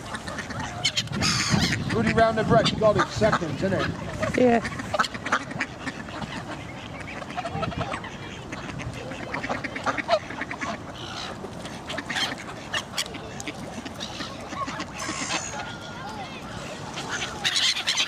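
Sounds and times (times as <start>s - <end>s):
ducks quacking: 0.0s - 18.0s.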